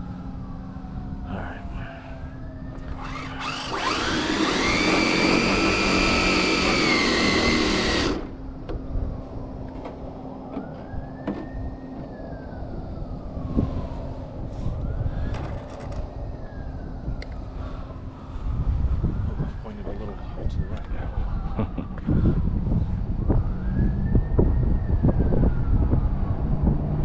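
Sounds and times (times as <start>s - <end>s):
electric motors whining: 2.7s - 8.5s.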